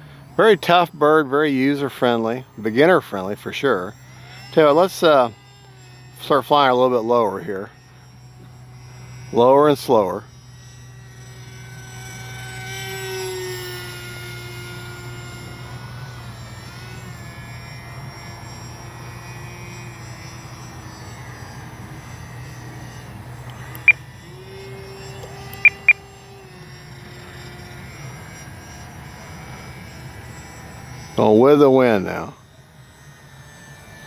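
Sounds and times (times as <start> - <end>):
model plane motor whining: 0.0 - 34.0
short sharp beeps: 25.6 - 26.0.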